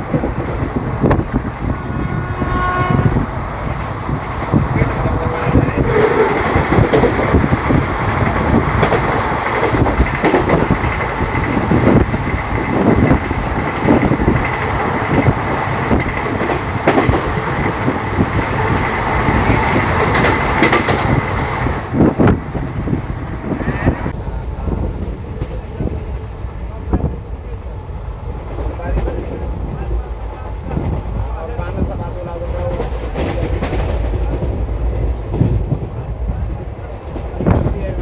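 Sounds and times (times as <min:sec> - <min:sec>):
train rushing at speed: 0:00.0 - 0:38.0
wheels clattering over rail joints: 0:03.6 - 0:22.6.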